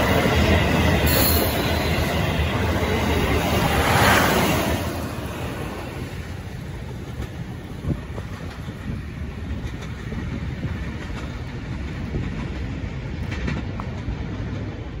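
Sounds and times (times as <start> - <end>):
train rumbling along track: 0.0 - 15.0
faint click of wheels on rails: 7.0 - 15.0.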